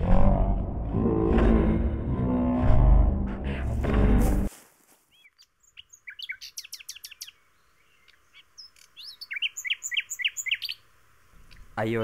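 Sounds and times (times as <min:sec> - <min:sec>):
birds chirping short high calls: 0:05.1 - 0:11.8.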